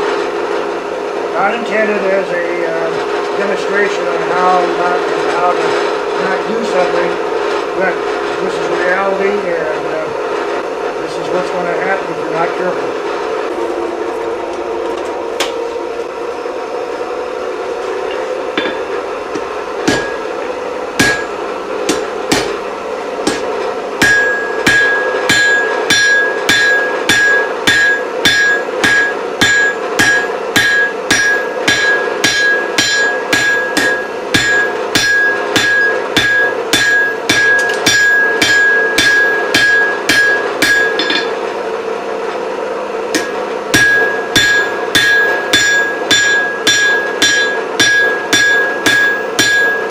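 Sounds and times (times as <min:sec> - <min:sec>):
hammer striking iron on anvil: 0:18.1 - 0:20.3, 0:21.0 - 0:22.6, 0:23.2 - 0:41.4, 0:43.1 - 0:49.9.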